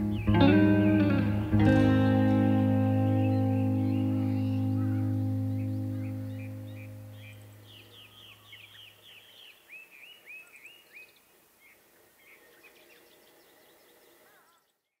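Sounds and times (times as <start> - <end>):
background music: 0.0 - 7.7
birds whistling: 0.0 - 11.2.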